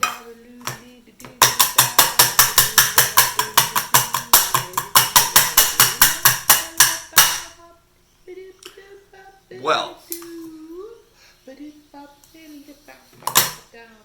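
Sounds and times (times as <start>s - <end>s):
tin can being knocked: 0.0s - 7.6s.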